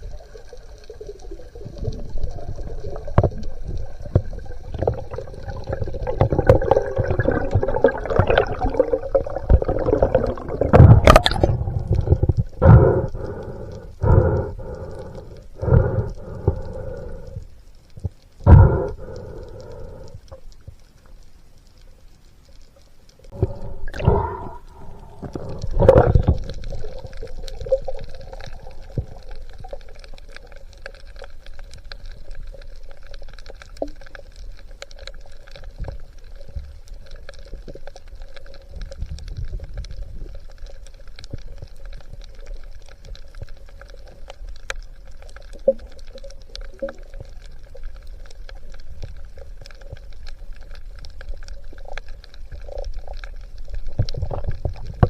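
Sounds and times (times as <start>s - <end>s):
underwater water gushes: 0.0s - 20.8s, 23.2s - 55.0s
faint crackling: 0.0s - 55.0s
steady underwater hum: 0.0s - 55.0s.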